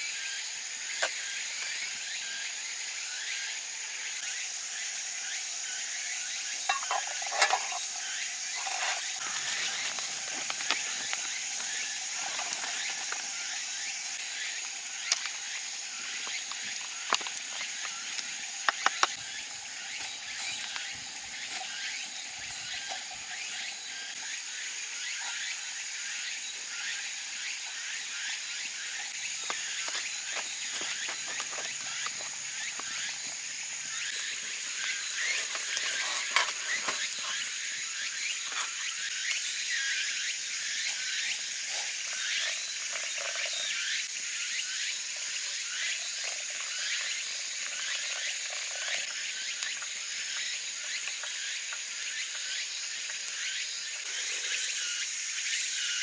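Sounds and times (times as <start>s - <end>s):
campfire crackling and popping: 8.6s - 24.2s, 29.0s - 38.8s
rain hissing: 8.6s - 24.2s.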